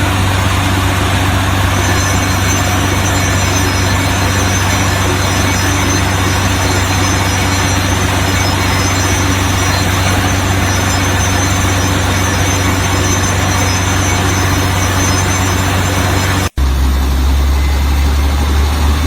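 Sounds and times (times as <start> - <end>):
small motor humming: 1.8 - 16.5.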